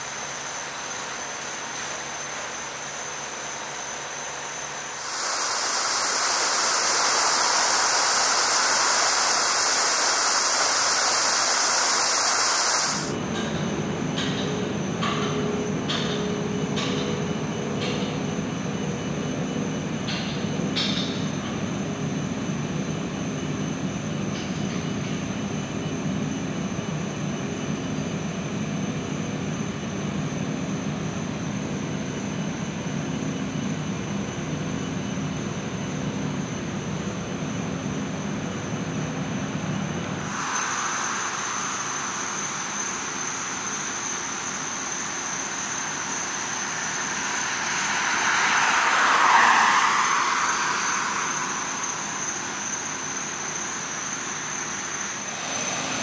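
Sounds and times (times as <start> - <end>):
high insect drone: 0.0 - 13.2, 40.1 - 56.0
vehicle passing by: 46.6 - 52.9.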